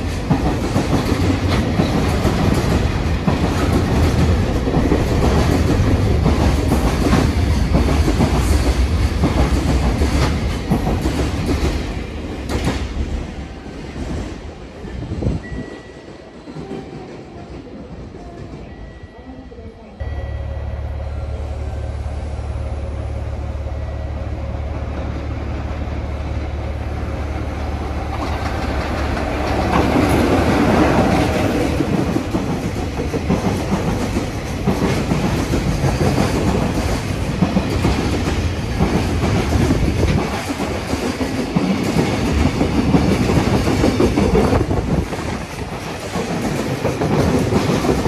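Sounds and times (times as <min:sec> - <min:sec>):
wheels clickety-clack over rail joints: 0:00.0 - 0:15.7, 0:27.6 - 0:48.0
train rushing noise: 0:00.0 - 0:18.9, 0:20.0 - 0:48.0
low locomotive hum: 0:19.6 - 0:40.3.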